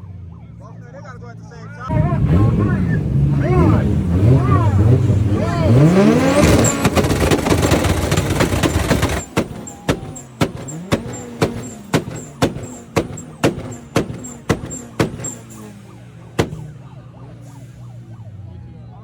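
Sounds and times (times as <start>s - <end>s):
car engine popping and crackling: 1.9s - 18.3s
steady ticking: 5.4s - 16.8s.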